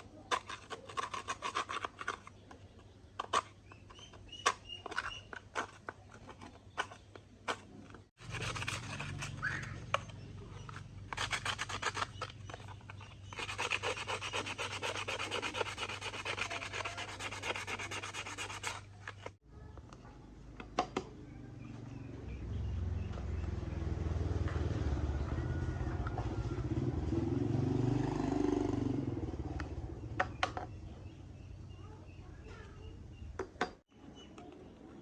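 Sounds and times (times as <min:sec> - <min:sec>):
rapid rubbing strokes: 0:08.2 - 0:19.4.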